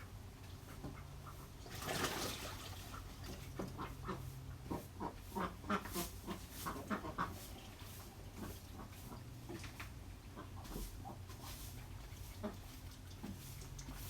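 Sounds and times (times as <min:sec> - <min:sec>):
ducks quacking: 0:02.8 - 0:09.3, 0:10.3 - 0:11.2, 0:12.3 - 0:12.7.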